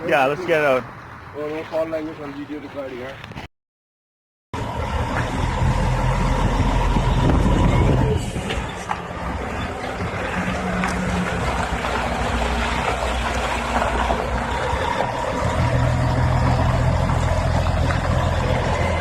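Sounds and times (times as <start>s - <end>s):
road and wind noise: 0.0s - 3.5s, 4.6s - 19.0s
truck engine running: 4.6s - 19.0s.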